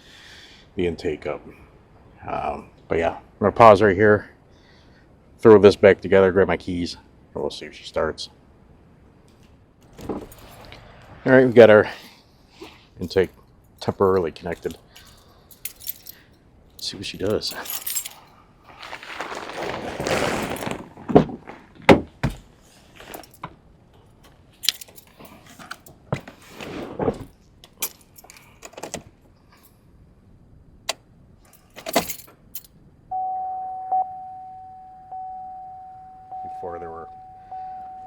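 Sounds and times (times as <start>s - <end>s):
car keys jangling: 9.8s - 10.9s, 13.0s - 18.3s, 23.0s - 23.4s, 24.1s - 26.0s, 27.6s - 29.7s, 30.9s - 32.8s
rustle: 14.6s - 21.8s, 22.5s - 29.9s
electronic chime tone: 33.1s - 38.0s.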